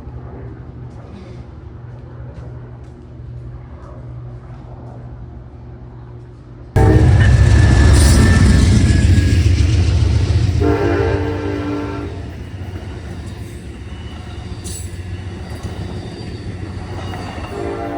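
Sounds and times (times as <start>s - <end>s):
chord-like horn blast: 6.8s - 17.9s
loud low rumble: 6.8s - 17.9s.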